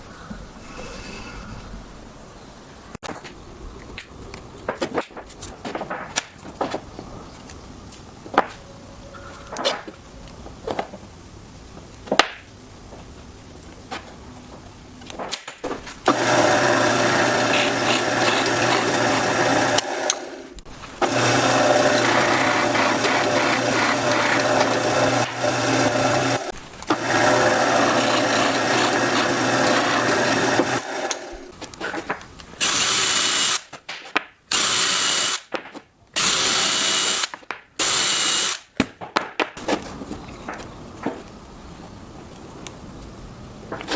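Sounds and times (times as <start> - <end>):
electric power tool running: 16.0 - 31.6, 32.6 - 33.7, 34.5 - 35.5, 36.2 - 38.7.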